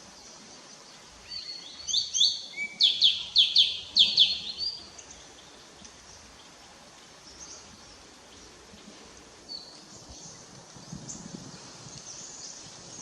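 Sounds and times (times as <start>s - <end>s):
steady background hiss: 0.0s - 13.0s
bird chirps: 1.3s - 5.5s
low rustle: 5.1s - 13.0s.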